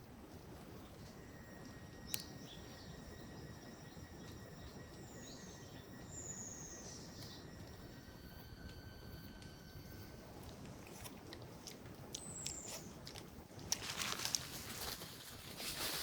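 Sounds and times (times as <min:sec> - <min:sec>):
high insect tone: 0:00.7 - 0:11.0.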